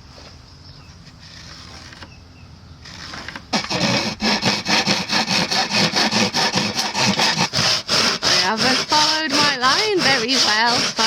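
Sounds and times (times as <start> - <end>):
handsaw cutting wood: 2.8 - 11.0.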